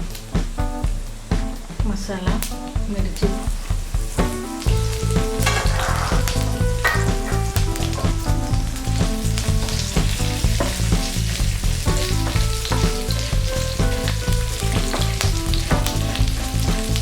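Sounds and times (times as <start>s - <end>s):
instrumental music: 0.0s - 17.0s
spices sizzling in hot oil: 4.7s - 17.0s.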